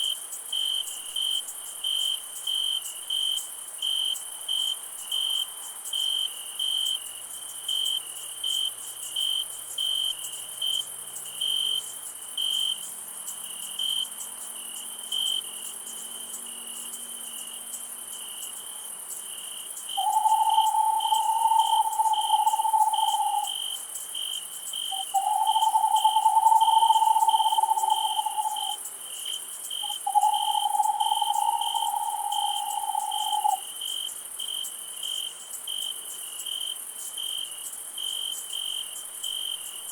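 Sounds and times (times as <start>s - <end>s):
crickets chirping: 0.0s - 39.9s
high insect hiss: 0.0s - 39.9s
long level mid-pitched calls: 20.0s - 23.6s, 24.9s - 28.8s, 29.8s - 33.6s.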